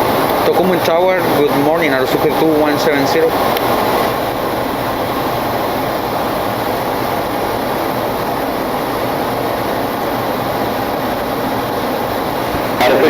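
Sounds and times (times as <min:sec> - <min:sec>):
airplane cockpit rushing noise: 0:00.0 - 0:04.3, 0:11.6 - 0:13.0.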